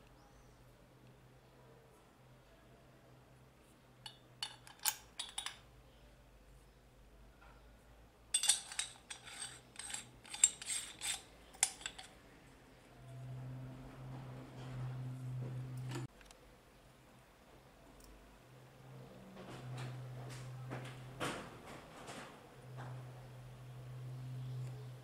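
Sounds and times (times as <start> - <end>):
mincer parts clicking and clattering: 4.0 - 5.6, 8.4 - 12.2.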